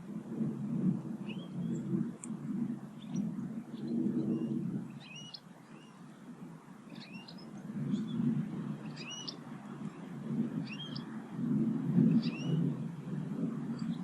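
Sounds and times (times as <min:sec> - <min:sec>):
small bird calling: 0:03.0 - 0:06.1, 0:06.9 - 0:08.2, 0:08.8 - 0:09.4, 0:10.6 - 0:11.1.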